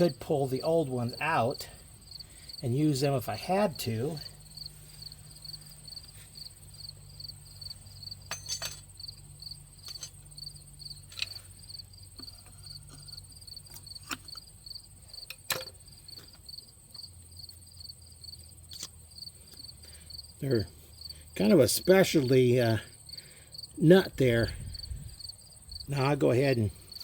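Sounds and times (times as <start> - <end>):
crickets chirping: 0.0 - 27.0
metallic clicks of tools: 8.3 - 8.9, 9.8 - 10.2, 11.1 - 11.5, 15.2 - 16.4, 18.7 - 19.0.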